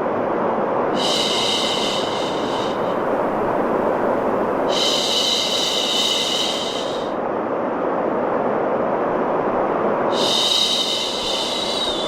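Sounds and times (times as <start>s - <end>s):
white noise: 0.0s - 12.0s
shushing hiss: 0.9s - 7.2s, 10.1s - 12.0s.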